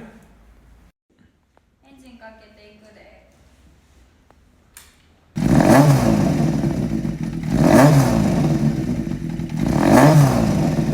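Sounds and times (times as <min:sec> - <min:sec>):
motorcycle engine revving: 0:05.4 - 0:10.9.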